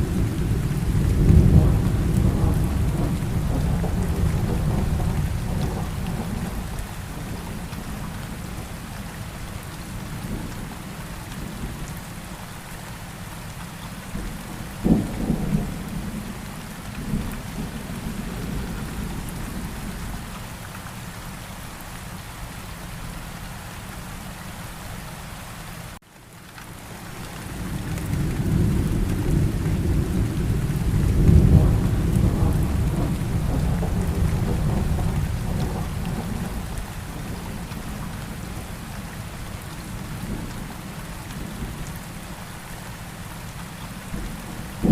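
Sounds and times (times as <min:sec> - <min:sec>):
rolling thunder: 0:00.0 - 0:08.5, 0:14.2 - 0:20.3, 0:27.6 - 0:38.8, 0:44.1 - 0:44.9
steady rain: 0:00.0 - 0:44.9.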